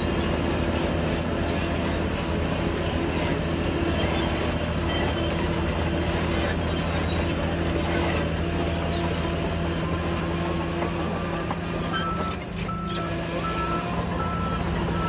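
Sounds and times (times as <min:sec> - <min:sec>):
diesel engines running: 0:00.0 - 0:15.0
reversing alarm beeping: 0:11.8 - 0:15.0
high-pitched backup beeper: 0:11.9 - 0:15.0.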